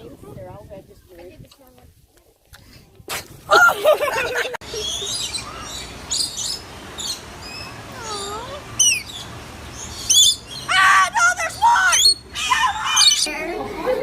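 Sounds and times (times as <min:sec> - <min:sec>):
birds chirping and whistling: 0:04.6 - 0:13.4
falling bird squeal: 0:11.6 - 0:13.3.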